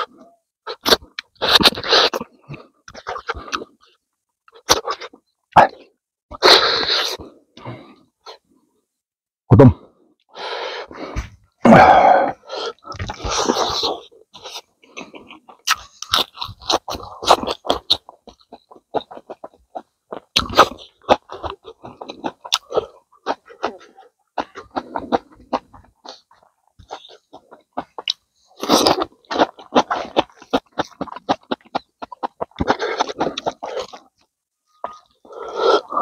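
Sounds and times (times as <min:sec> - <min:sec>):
man chewing and crunching: 0:00.0 - 0:08.4, 0:11.7 - 0:36.0
breathy sounds: 0:06.4 - 0:08.8, 0:09.7 - 0:15.5, 0:34.7 - 0:36.0.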